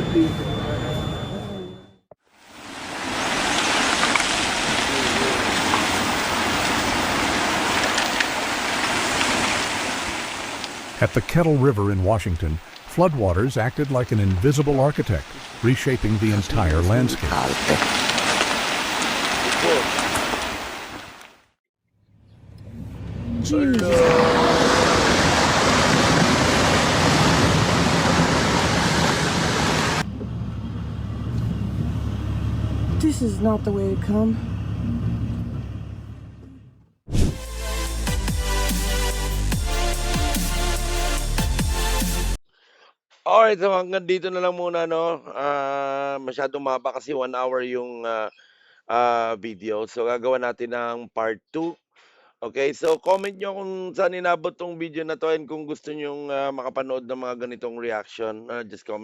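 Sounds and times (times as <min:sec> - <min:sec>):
heavy rain hissing: 0:02.4 - 0:21.2, 0:24.0 - 0:30.0
floodwater rushing: 0:02.4 - 0:21.3, 0:23.6 - 0:30.0.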